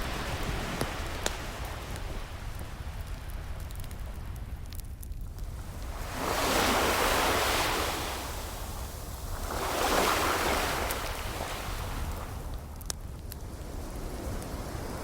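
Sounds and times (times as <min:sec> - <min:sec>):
faint fire crackles: 0:00.0 - 0:15.0
ocean waves washing in: 0:05.5 - 0:12.5.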